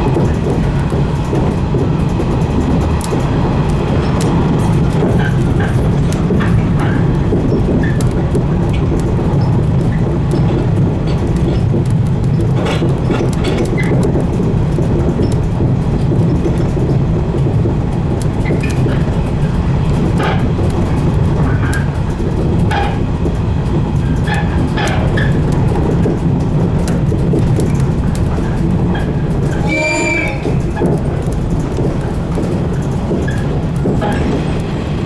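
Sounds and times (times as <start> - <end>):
electric train rumbling: 0.0 - 35.0
high-pitched squeal: 7.2 - 19.4, 28.2 - 35.0.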